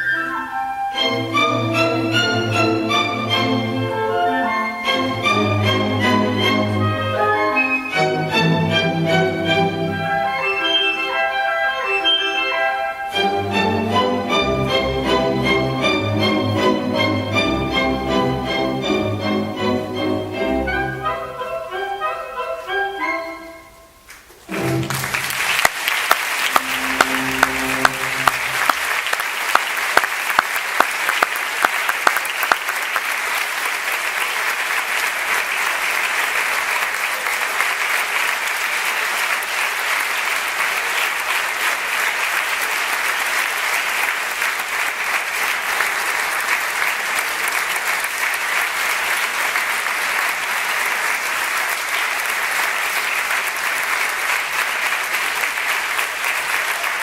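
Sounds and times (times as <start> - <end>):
audience applauding: 24.4 - 57.0
orchestra held note: 26.5 - 29.1.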